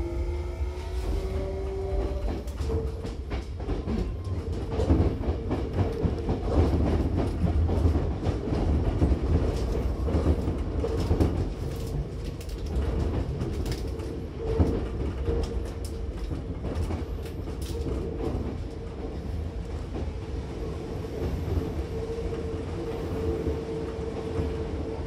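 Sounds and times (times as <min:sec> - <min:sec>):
train low rumble: 0:00.0 - 0:25.0
wheels clicking over rail joints: 0:02.0 - 0:18.9.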